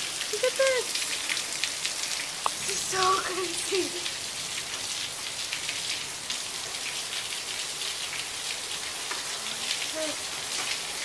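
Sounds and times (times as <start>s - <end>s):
heavy rain and hail: 0.0s - 11.0s.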